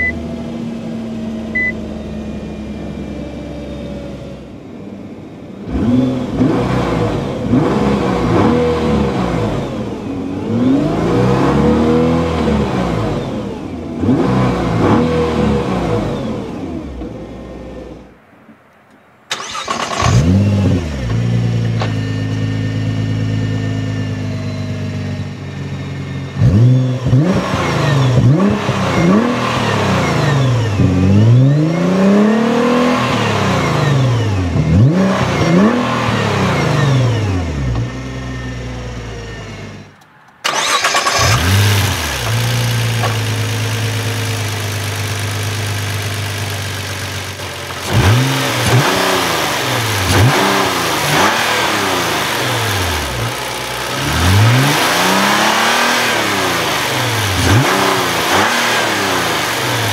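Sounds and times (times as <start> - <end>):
car engine revving: 5.6 - 18.1, 19.3 - 59.9
car engine idling: 37.1 - 47.9, 52.1 - 54.4.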